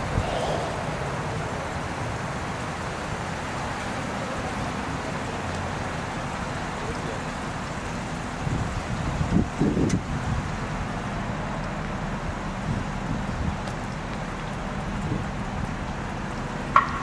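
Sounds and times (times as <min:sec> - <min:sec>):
wind noise on microphone: 0:00.0 - 0:02.8, 0:08.3 - 0:11.4, 0:12.1 - 0:17.0.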